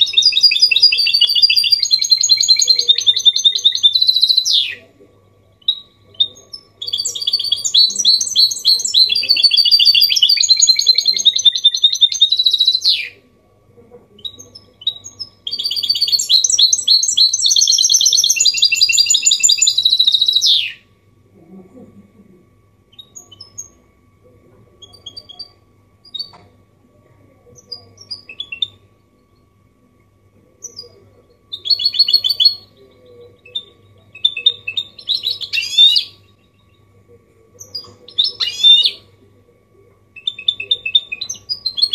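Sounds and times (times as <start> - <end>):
finch twittering song: 0.0 - 4.8, 5.5 - 13.2, 14.2 - 20.8, 30.6 - 36.9, 37.6 - 39.0, 40.2 - 41.9.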